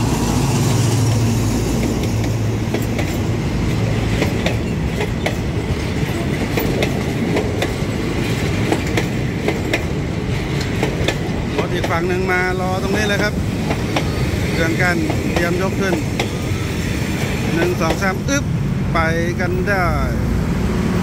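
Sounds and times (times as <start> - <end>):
locomotive engine hum: 0.0 - 21.0
train coaches rumbling past: 0.0 - 21.0
wheels clicking over rail joints: 1.5 - 16.5.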